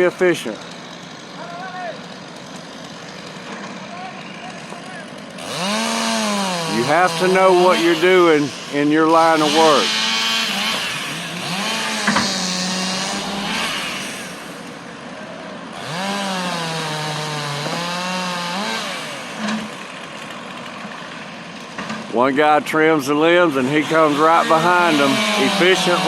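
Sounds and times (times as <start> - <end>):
chainsaw cutting limbs: 0.0 - 15.1, 15.7 - 22.2, 23.4 - 26.0
machine engine running: 0.0 - 16.1.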